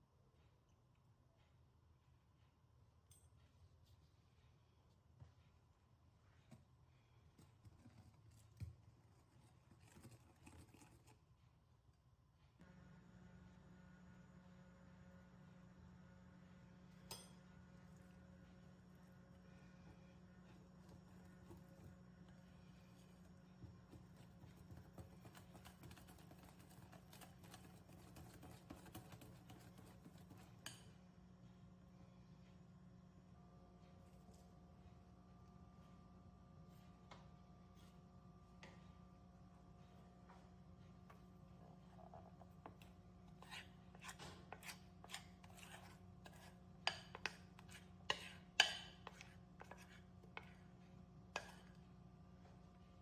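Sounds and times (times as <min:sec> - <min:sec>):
faint steady hum: 0:00.0 - 0:53.0
utensil tapping mixing bowl: 0:23.0 - 0:30.9, 0:42.0 - 0:50.6.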